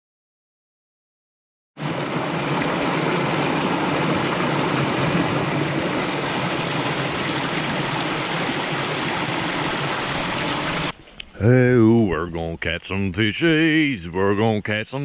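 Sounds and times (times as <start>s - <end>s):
stream rushing over rocks: 1.8s - 10.9s.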